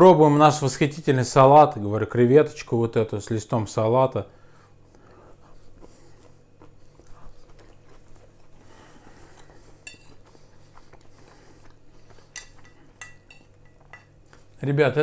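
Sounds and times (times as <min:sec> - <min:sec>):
man chewing food: 0:04.5 - 0:14.6
metal fork clinking on plate: 0:09.9 - 0:10.2, 0:12.4 - 0:14.2.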